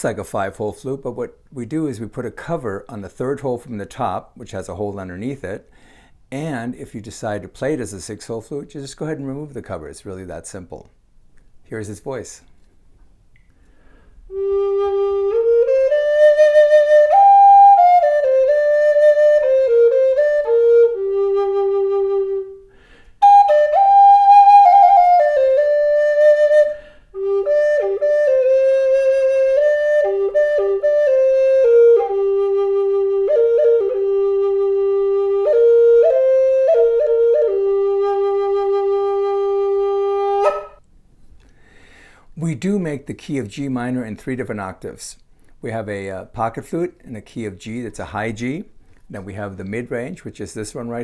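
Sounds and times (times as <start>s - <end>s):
flute slow melody: 14.3s - 40.8s.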